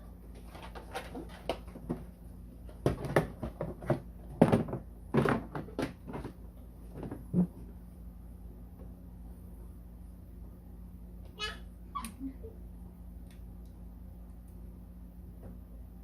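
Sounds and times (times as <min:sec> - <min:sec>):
plastic parts knocking and clattering: 0:02.7 - 0:07.6.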